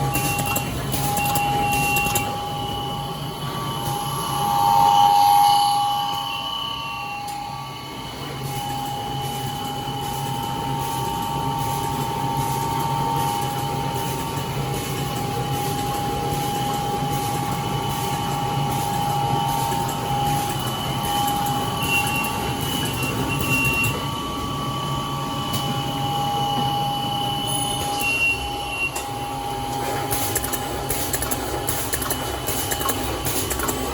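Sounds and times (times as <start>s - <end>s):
faint regular machine clicks: 0.0s - 2.4s, 28.9s - 33.9s
bag-making machine whining: 0.0s - 33.9s.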